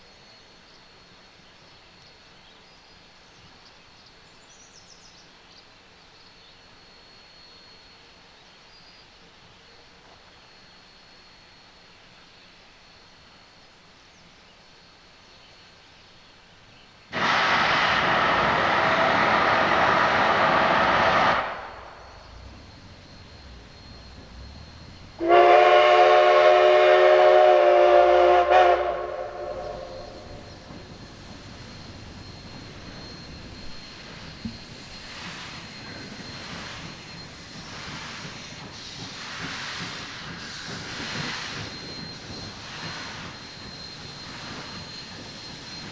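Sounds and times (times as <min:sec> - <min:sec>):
steam hissing: 0:17.1 - 0:45.9
chime steam whistle: 0:17.2 - 0:45.9
low uneven rumble: 0:17.4 - 0:25.4.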